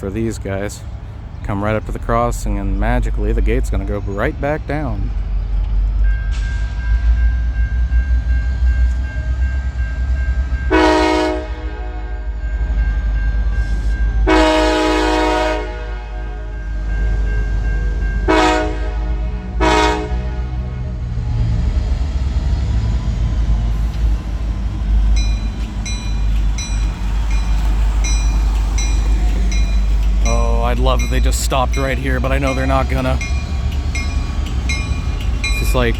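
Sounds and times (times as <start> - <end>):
crossing bell ringing: 0.0 - 21.6, 22.6 - 35.9
train rumbling: 0.0 - 35.9
locomotive air horn blasts: 10.7 - 12.4, 14.2 - 16.9, 18.3 - 21.0.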